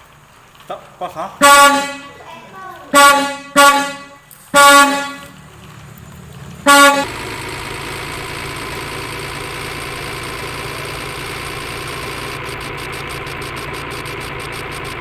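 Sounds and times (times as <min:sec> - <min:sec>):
horn honks: 0:01.4 - 0:02.2, 0:02.9 - 0:05.4, 0:06.6 - 0:15.0
engine running: 0:04.6 - 0:15.0.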